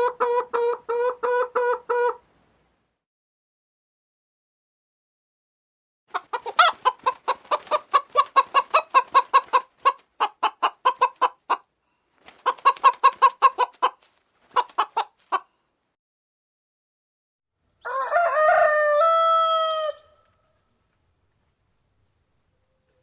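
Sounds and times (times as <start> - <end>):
chicken clucking: 0.0 - 2.2, 6.1 - 11.7, 12.3 - 15.5.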